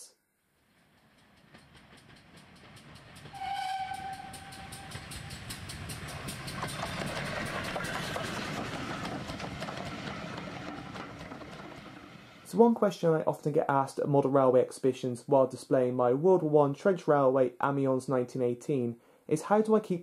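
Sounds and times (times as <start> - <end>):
train rhythmic beat passing: 0.6 - 12.6
train whistle blast: 3.3 - 5.4.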